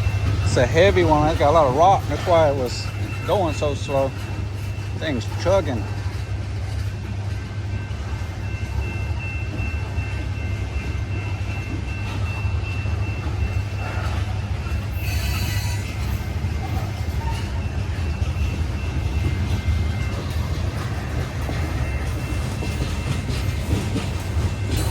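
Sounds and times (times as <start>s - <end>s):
freight train rumbling past: 0.0s - 24.9s
train wheel squeals: 0.0s - 24.9s
sharp wheel screech: 14.9s - 16.2s.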